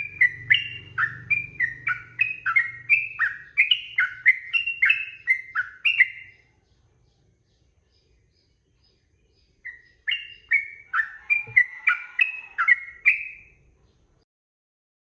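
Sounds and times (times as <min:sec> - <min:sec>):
bird whistling song: 0:00.0 - 0:06.4, 0:08.3 - 0:13.6.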